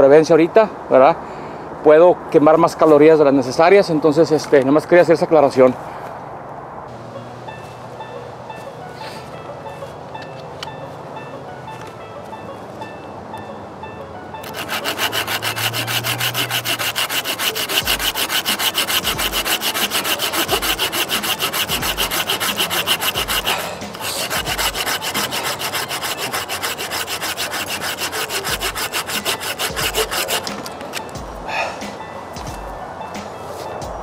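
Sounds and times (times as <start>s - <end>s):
hand saw cutting wood: 14.4s - 31.1s.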